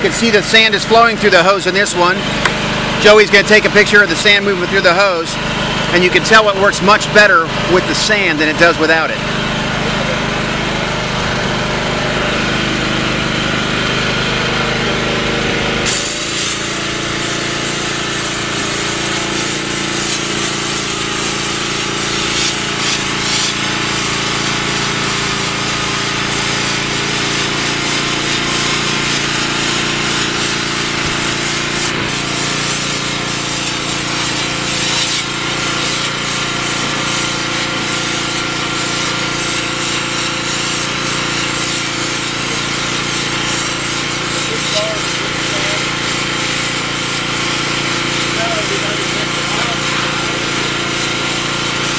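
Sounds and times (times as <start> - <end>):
pressure washer engine drone: 0.0 - 51.9
water jet hissing: 15.8 - 51.9.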